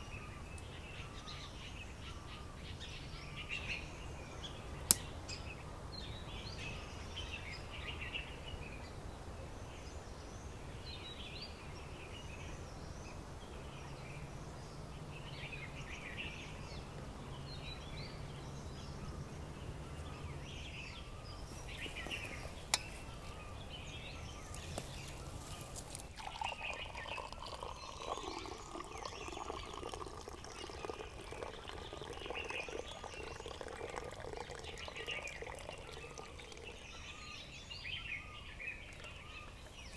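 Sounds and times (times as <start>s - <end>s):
low background rumble: 0.0s - 26.1s
wild birds chirping: 0.0s - 39.9s.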